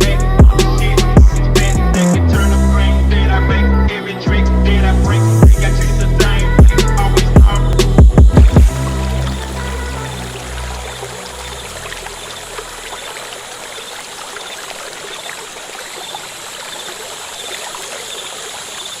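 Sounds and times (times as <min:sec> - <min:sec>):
flowing stream water: 0:06.6 - 0:19.0
low sustained music notes: 0:07.5 - 0:13.2.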